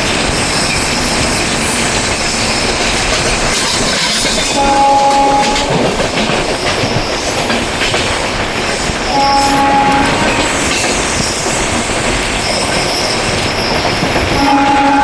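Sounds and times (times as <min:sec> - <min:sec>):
train rumble and rail clatter: 0:00.0 - 0:15.0
train horn blasts: 0:04.5 - 0:06.0, 0:09.1 - 0:11.1, 0:14.3 - 0:15.0.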